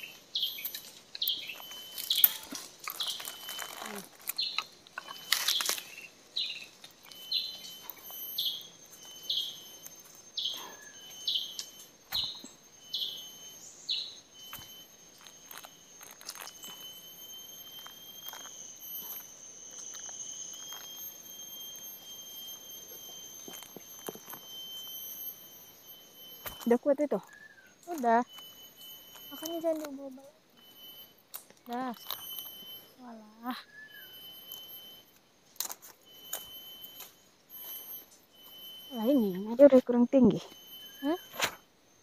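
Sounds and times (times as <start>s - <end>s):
bird calling: 0.0s - 16.9s
high-pitched insect drone: 0.0s - 42.0s.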